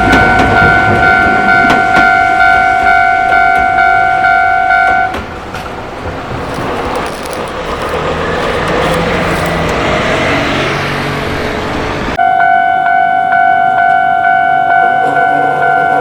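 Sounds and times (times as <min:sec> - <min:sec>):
level crossing bell ringing: 0:00.0 - 0:05.3, 0:12.2 - 0:16.0
train rumble on rails: 0:00.0 - 0:12.2.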